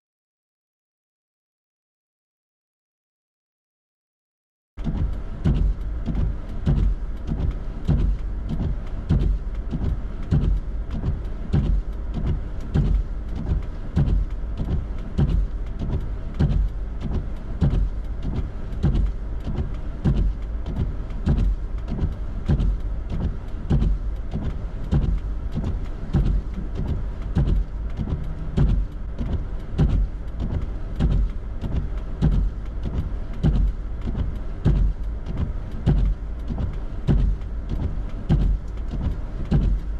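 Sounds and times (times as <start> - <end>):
regular thumping: 4.8 - 39.9
road rumble inside car: 4.8 - 39.9.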